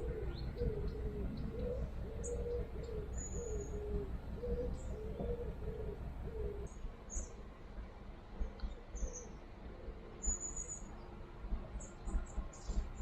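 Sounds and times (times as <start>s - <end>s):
low rumble: 0.0s - 6.7s
small birds chirping: 0.0s - 7.4s, 8.4s - 9.4s, 10.2s - 11.1s, 11.8s - 13.0s.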